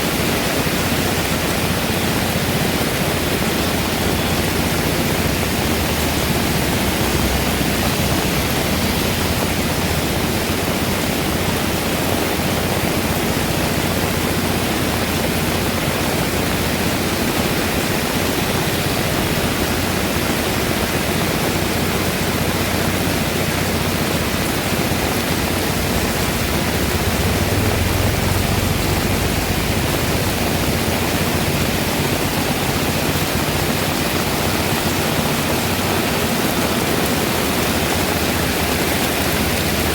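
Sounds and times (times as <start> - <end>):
heavy rain pouring: 0.0 - 39.9
deep low rumble: 25.3 - 32.2.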